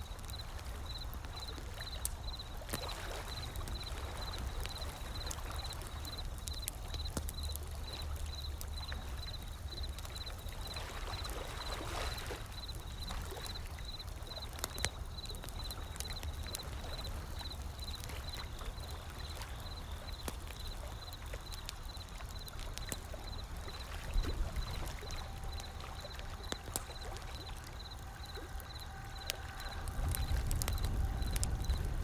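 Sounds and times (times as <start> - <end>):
ocean waves: 0.0 - 32.0
wood fire crackling: 0.0 - 32.0.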